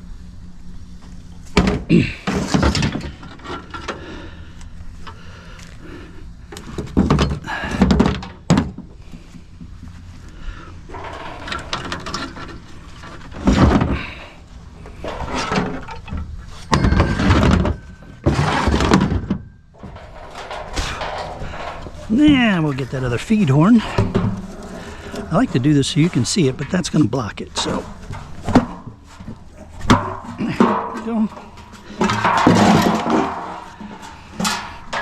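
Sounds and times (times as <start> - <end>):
metal parts knocking and clattering: 1.6 - 4.0, 10.9 - 14.2, 14.8 - 35.0.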